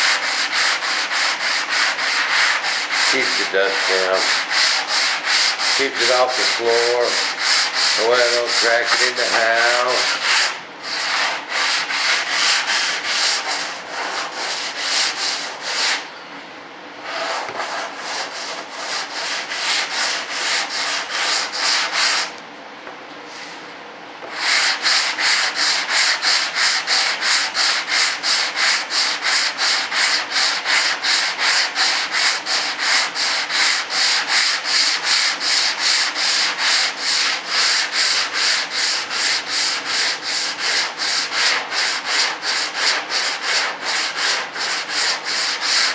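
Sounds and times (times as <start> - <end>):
sandpaper rubbing by hand: 0.0 - 16.0, 17.0 - 22.3, 24.3 - 45.9.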